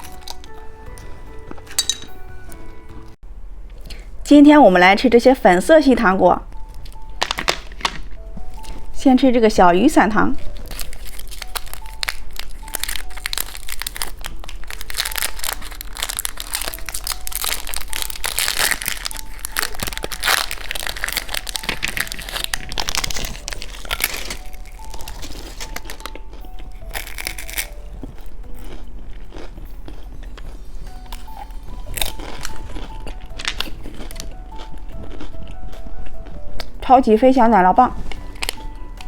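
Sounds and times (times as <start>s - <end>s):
plastic wrapper crinkling: 0.0s - 0.6s, 6.6s - 8.9s, 10.4s - 28.4s, 30.9s - 36.8s, 38.0s - 39.0s
faint tune: 0.0s - 3.2s, 4.3s - 39.0s.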